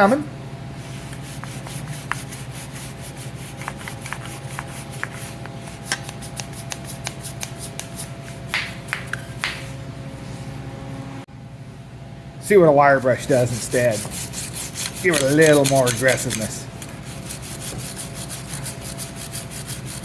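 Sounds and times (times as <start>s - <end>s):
brush scrubbing metal: 0.8s - 8.5s, 13.2s - 20.0s.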